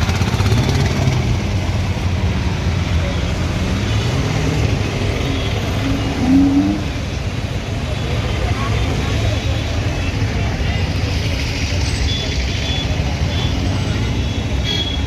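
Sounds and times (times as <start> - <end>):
car engines in traffic: 0.0 - 15.0
engine revving: 3.5 - 7.2.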